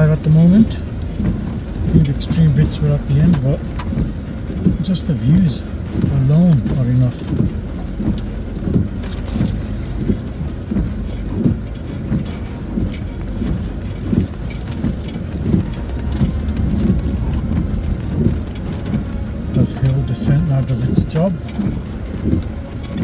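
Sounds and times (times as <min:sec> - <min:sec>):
rain tapping on roof: 0:00.0 - 0:23.0
suspension and tyre knocks: 0:00.0 - 0:23.0
vehicle cabin low rumble: 0:00.0 - 0:23.0.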